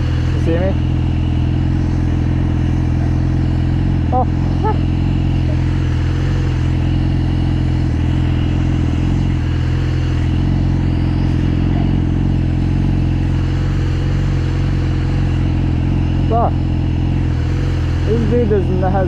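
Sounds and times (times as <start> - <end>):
motorcycle engine running steadily: 0.0 - 19.0.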